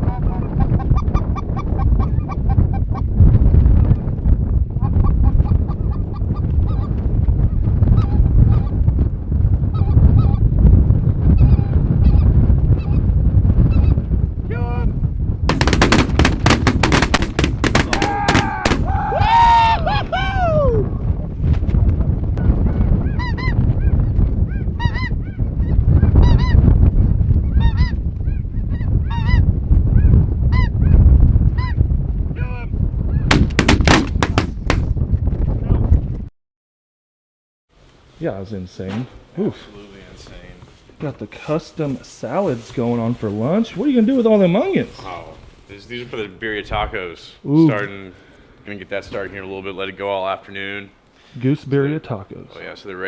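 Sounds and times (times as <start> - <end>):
wind rumble on microphone: 0.0 - 36.3, 42.2 - 47.6.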